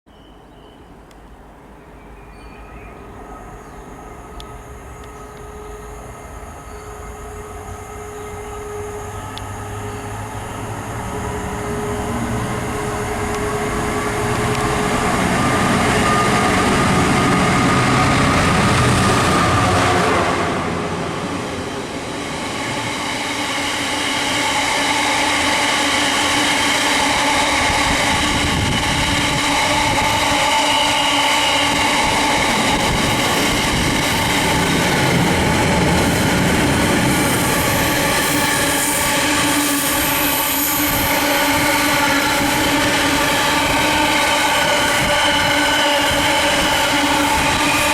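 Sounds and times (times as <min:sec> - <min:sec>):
train passing: 0:00.2 - 0:47.9.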